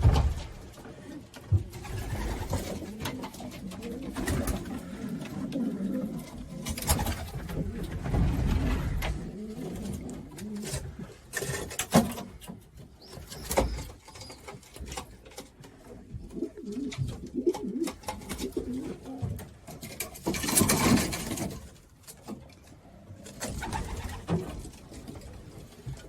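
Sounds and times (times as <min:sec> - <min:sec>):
clicks and knocks: 0:00.0 - 0:01.1
pigeons cooing: 0:00.0 - 0:11.0, 0:16.1 - 0:19.4.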